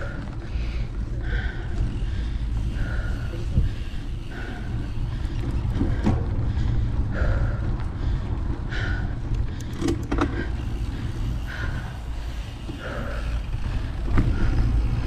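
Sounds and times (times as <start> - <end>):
bike clicking and rattling: 0.0 - 15.0
wind and tyres rumbling: 0.0 - 15.0.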